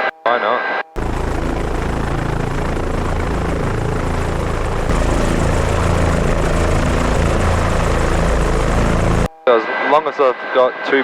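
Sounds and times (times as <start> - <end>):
helicopter rotor and turbine: 1.0 - 9.3.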